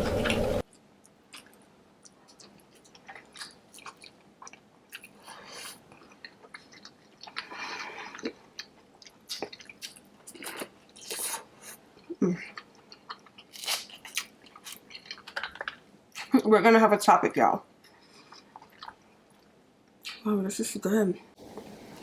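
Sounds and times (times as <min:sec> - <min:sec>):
wet chewing and lip smacks: 0:00.2 - 0:11.4, 0:18.2 - 0:20.2
crunchy bite: 0:13.5 - 0:15.7.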